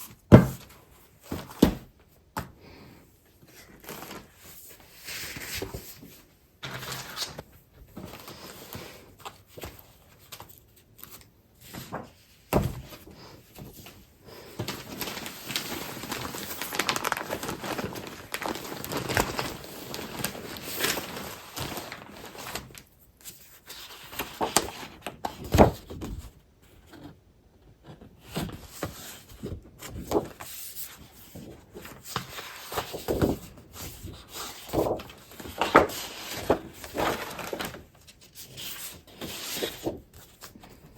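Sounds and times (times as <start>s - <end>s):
packaging rustling and crinkling: 13.8s - 23.0s, 29.8s - 40.9s.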